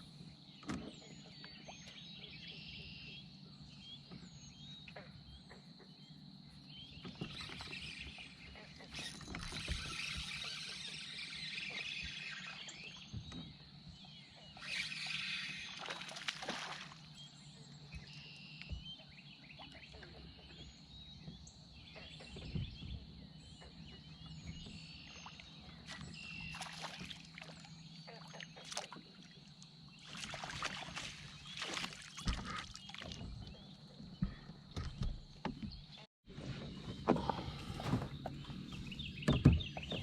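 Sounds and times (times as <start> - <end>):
faint bird chirps: 0.8 - 16.1
water movement: 23.7 - 35.4.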